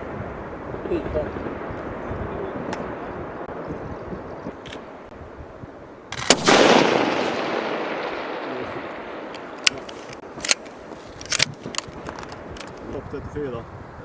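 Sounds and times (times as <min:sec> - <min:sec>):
rifle shot echoing: 0:06.1 - 0:12.6.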